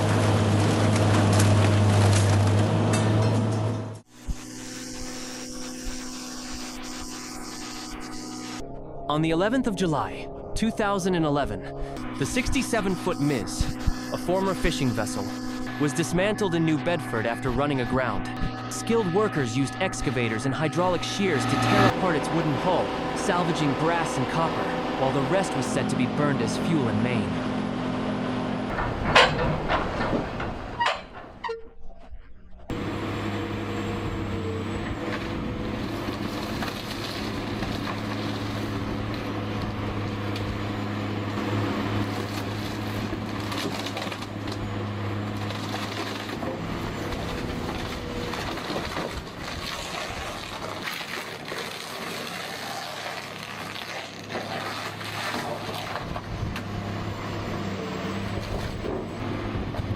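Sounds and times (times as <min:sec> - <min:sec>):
diesel engine drone: 0:00.0 - 0:31.5, 0:32.5 - 0:59.9
material cracking and snapping: 0:48.8 - 0:56.1
crunching of material torn apart: 0:49.5 - 0:56.0.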